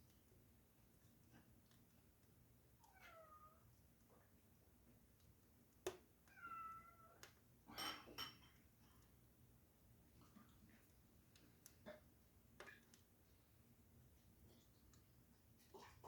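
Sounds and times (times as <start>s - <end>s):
cat meowing: 2.8s - 3.6s, 6.3s - 7.2s.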